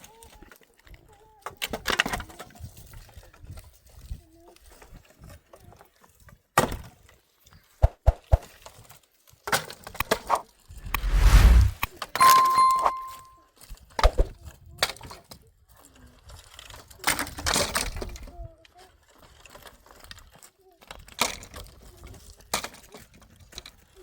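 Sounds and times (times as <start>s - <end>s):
metallic ding: 11.0s - 13.3s.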